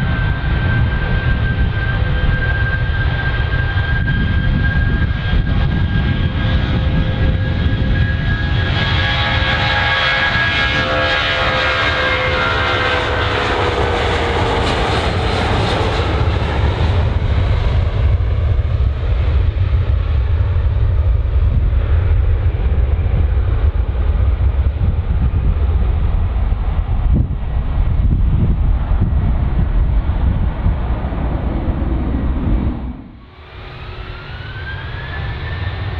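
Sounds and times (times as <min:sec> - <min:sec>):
deep jet rumble: 0:00.0 - 0:35.9
jet engine whine: 0:00.0 - 0:35.9.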